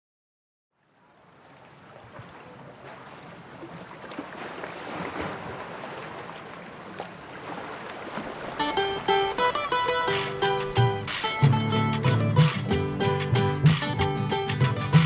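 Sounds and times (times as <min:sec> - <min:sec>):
wind: 0:00.7 - 0:15.0
waves rushing: 0:03.2 - 0:15.0
small splashes and clicks: 0:08.1 - 0:15.0.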